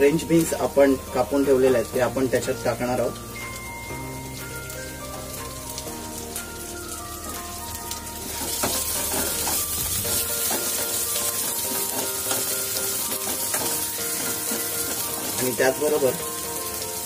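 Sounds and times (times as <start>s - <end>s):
vegetables sizzling in hot oil: 0.0s - 17.0s
wooden spatula scraping a pan: 8.2s - 16.0s.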